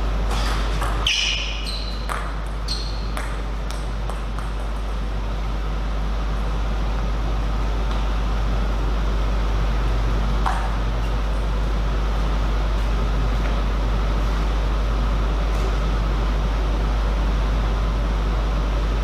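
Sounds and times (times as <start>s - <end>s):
hall hum with electrical drone: 0.0s - 19.0s
shoe squeaks: 0.3s - 3.2s.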